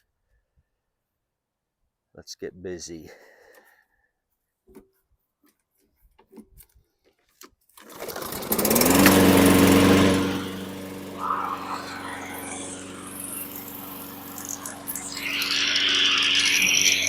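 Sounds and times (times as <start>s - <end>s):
lawn mower engine: 7.8s - 17.0s.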